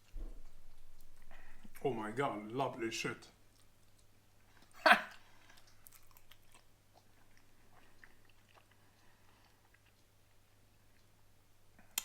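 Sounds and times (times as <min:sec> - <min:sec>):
wet sticky chewing sounds: 0:03.4 - 0:12.0.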